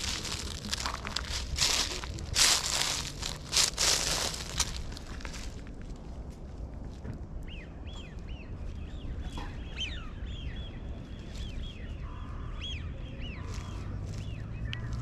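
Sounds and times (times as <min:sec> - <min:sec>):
birds chirping: 0:07.4 - 0:15.0.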